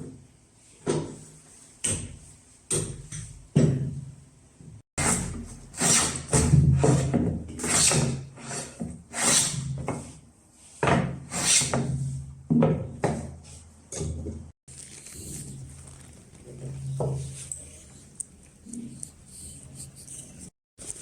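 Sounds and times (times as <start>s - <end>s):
hand tool rubbing on wood: 14.8s - 21.0s.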